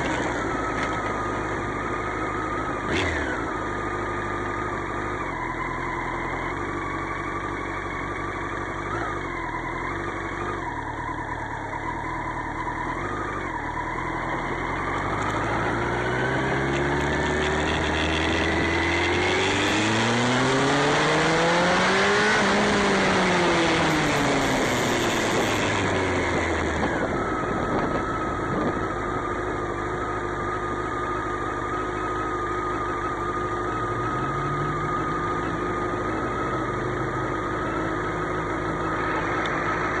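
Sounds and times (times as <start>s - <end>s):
motorcycle engine accelerating: 0.0s - 40.0s
wind noise: 24.3s - 29.2s.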